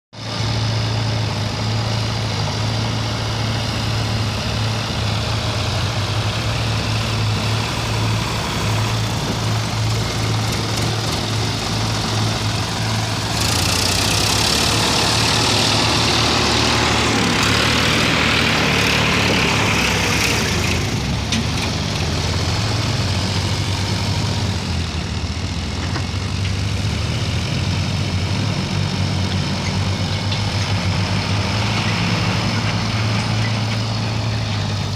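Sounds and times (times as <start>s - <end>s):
loud rushing noise: 0.2s - 21.3s
backhoe diesel engine running: 0.2s - 34.9s.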